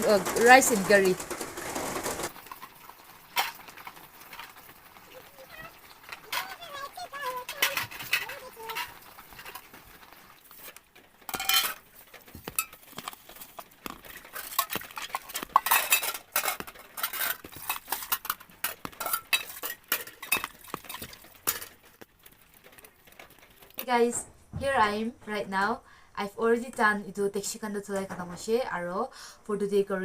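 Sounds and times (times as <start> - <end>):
utensils and dishes clinking: 0.0 - 2.7, 6.0 - 10.7, 11.3 - 23.7.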